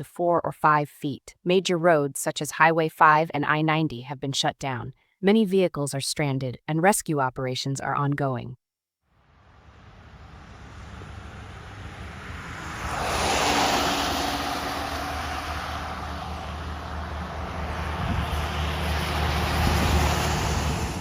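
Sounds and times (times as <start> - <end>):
rushing noise: 9.2 - 21.0
vehicle engine humming: 9.2 - 21.0.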